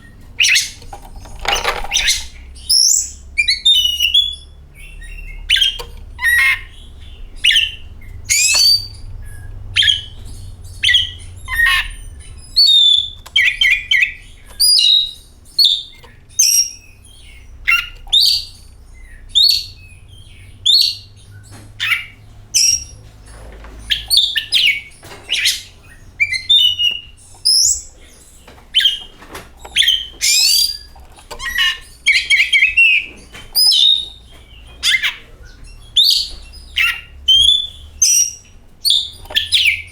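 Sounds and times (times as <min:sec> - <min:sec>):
bird singing whistled phrases: 0:35.8 - 0:39.9.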